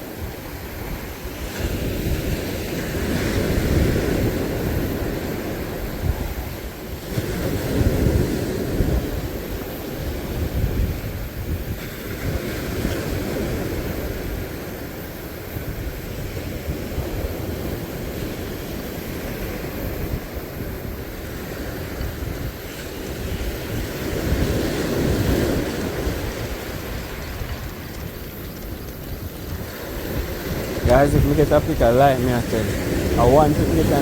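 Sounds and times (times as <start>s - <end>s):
sea surf: 0.0s - 34.0s
wind buffeting microphone: 0.0s - 34.0s.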